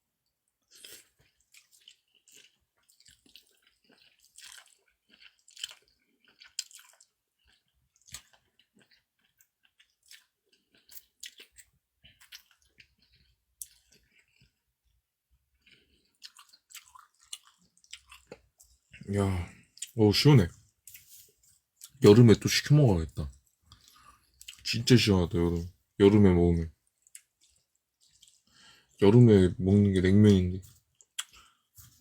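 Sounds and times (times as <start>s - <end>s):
person chewing noodles: 0.5s - 22.1s, 22.7s - 29.2s, 30.6s - 32.0s.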